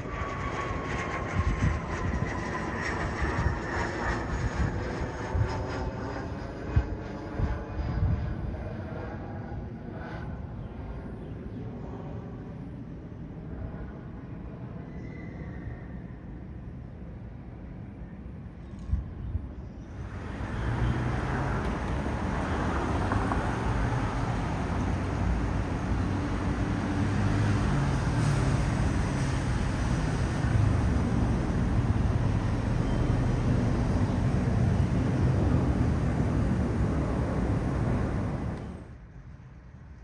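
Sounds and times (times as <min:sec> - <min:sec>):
aircraft engine rush: 0:00.0 - 0:15.6, 0:19.9 - 0:39.1.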